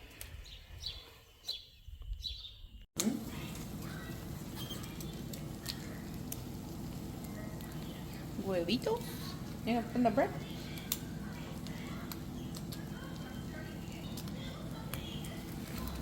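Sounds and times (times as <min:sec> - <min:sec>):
small birds chirping: 0:00.0 - 0:06.5, 0:07.2 - 0:08.4, 0:10.4 - 0:16.0.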